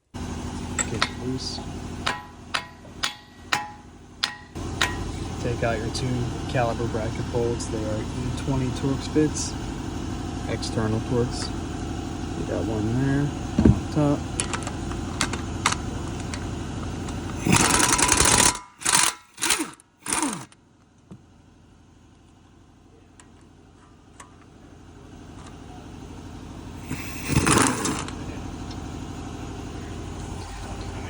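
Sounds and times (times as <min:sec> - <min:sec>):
impact gun bursts: 0:17.4 - 0:20.5.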